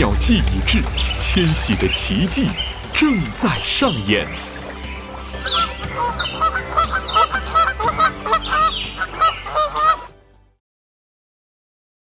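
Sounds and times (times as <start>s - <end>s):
flock of water birds calling: 0.0s - 10.1s.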